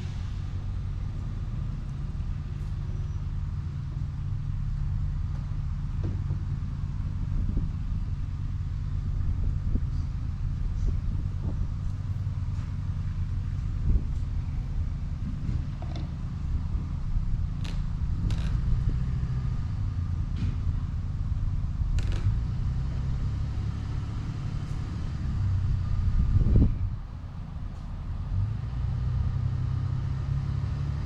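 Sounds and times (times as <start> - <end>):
vehicle engine rumbling: 0.0 - 31.0
sharp clicks: 21.9 - 22.4.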